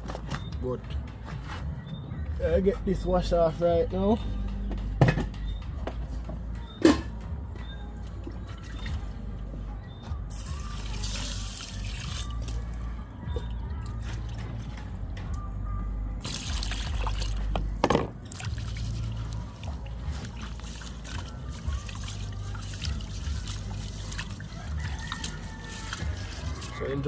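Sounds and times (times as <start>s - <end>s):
water pouring and trickling: 8.0s - 9.4s, 10.3s - 14.7s, 16.2s - 27.0s.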